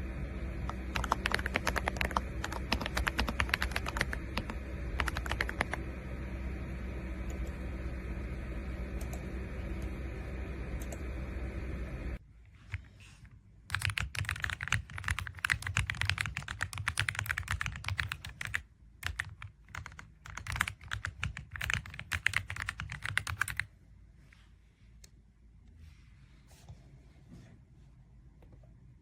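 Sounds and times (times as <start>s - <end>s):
steady hum: 0.0s - 29.0s
mechanical keyboard typing: 0.7s - 5.8s, 13.7s - 23.7s.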